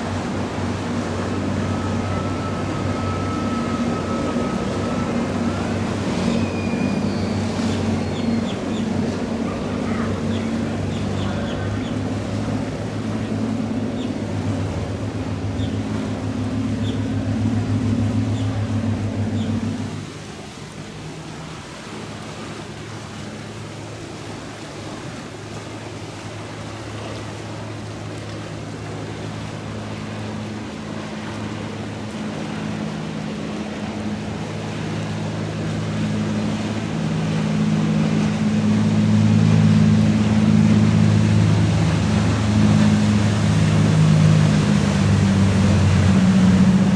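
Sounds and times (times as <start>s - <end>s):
powerboat engine drone: 0.0s - 46.9s
water wash: 0.0s - 46.9s.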